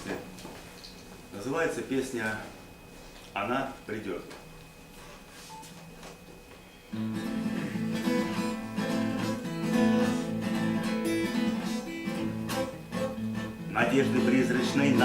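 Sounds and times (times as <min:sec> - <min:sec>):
acoustic guitar strumming: 0:06.9 - 0:15.0.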